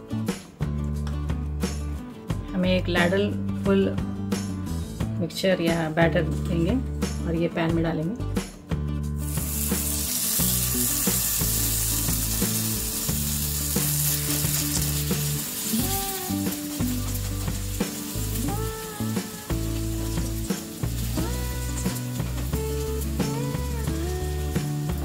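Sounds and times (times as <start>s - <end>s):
batter sizzling in hot oil: 9.2s - 25.0s.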